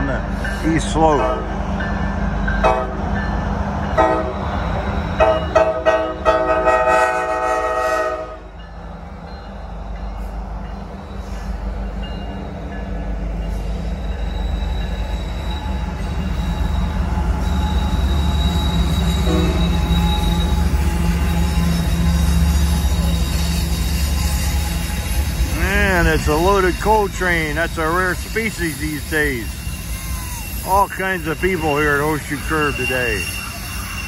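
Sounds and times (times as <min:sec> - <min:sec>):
diesel locomotives rumbling: 0:00.0 - 0:34.0
locomotive air horn: 0:05.2 - 0:08.5, 0:19.2 - 0:19.9
high wheel squeal: 0:13.5 - 0:34.0.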